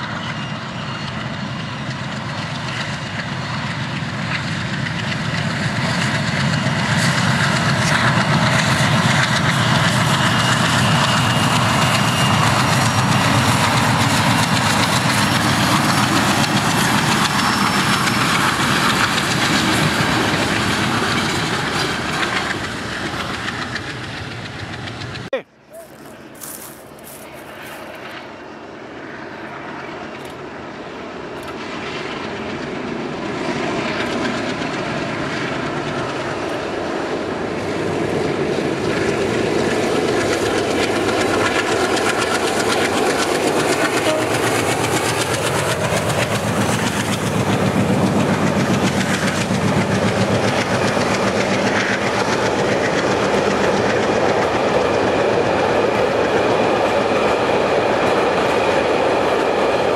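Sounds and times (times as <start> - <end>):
diesel locomotive engine: 0.0 - 59.9.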